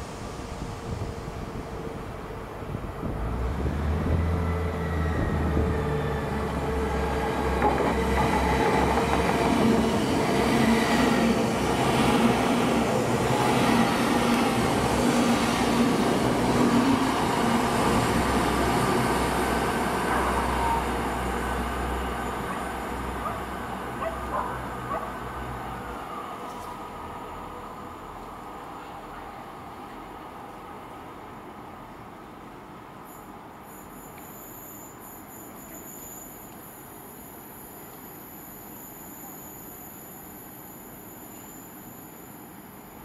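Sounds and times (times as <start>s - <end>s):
train wheels rumbling: 0.0s - 26.0s.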